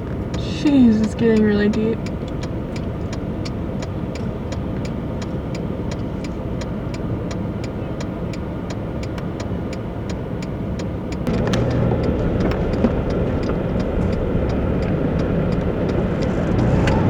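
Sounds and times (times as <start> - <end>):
car engine rumbling: 0.0 - 17.0
fast even ticking: 11.1 - 17.0.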